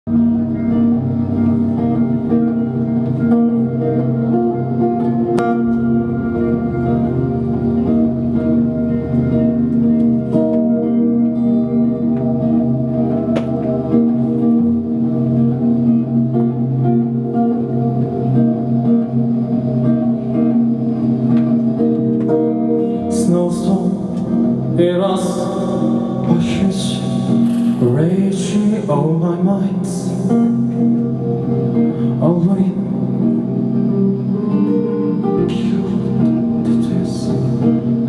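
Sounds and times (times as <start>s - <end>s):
guitar sustained notes: 0.1s - 38.0s
live band playing: 25.8s - 31.8s.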